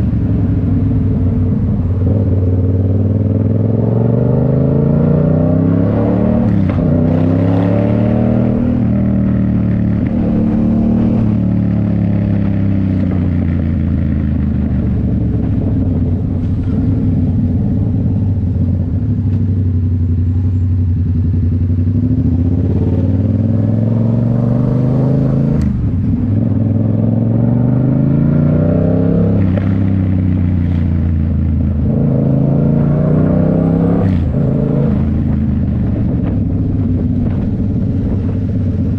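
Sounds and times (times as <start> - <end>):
motorcycle exhaust note: 0.0 - 38.9.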